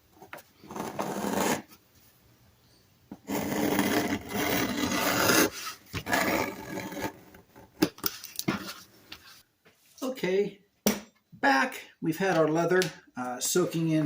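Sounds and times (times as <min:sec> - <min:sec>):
leather rubbing and scraping: 0:00.6 - 0:01.8, 0:03.2 - 0:07.6.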